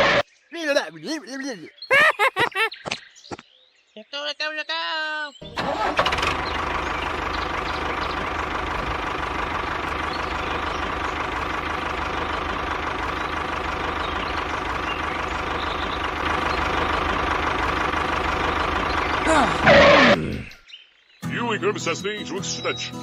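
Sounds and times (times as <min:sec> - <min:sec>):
small engine chugging: 0:05.4 - 0:20.2.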